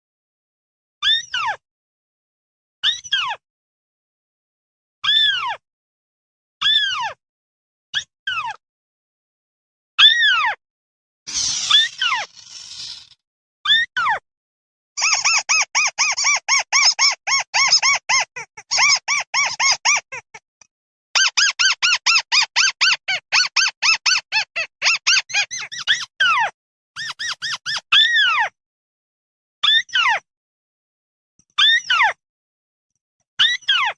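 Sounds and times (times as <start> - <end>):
bird flock call squeaky notes: 15.0 - 20.3, 21.2 - 26.4, 27.0 - 28.0.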